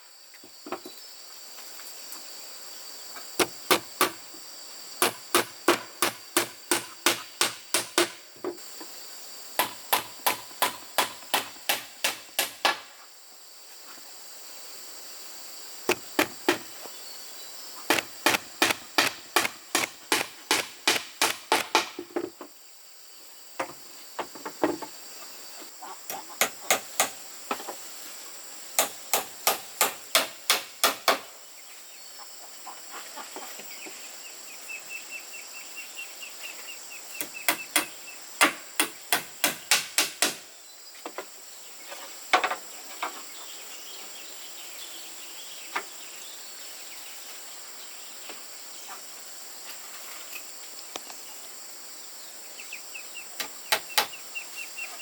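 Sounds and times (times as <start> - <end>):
high insect drone: 0.0 - 55.0
hammer driving nails into wood: 3.4 - 4.2, 5.0 - 8.2, 9.6 - 12.9, 15.9 - 16.6, 17.9 - 22.0, 26.4 - 27.2, 28.8 - 31.3, 37.5 - 40.5.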